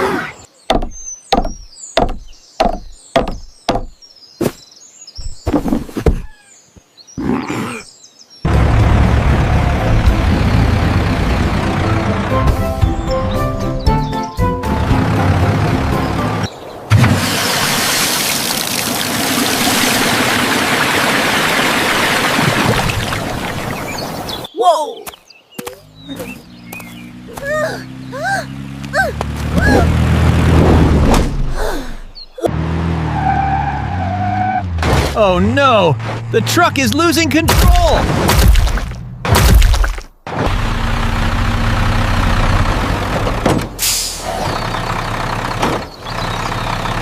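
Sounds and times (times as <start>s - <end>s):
sharp hard knocks: 0.7s - 4.6s.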